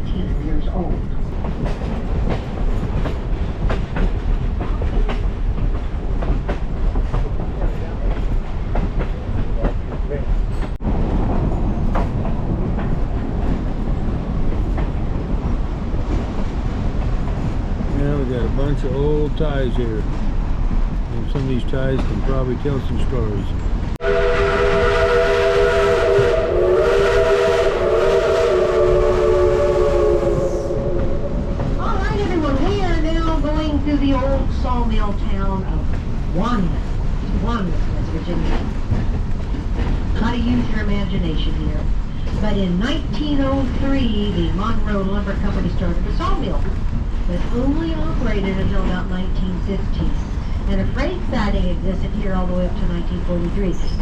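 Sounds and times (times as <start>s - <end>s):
railroad cars rumbling: 0.0s - 54.0s
steam whistle blowing a chord: 24.0s - 31.6s.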